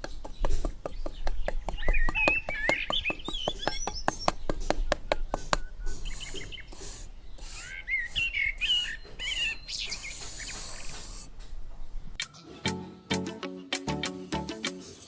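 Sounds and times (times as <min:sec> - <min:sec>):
small birds chirping: 0:00.0 - 0:12.5
scraping hissing noise: 0:03.6 - 0:12.1.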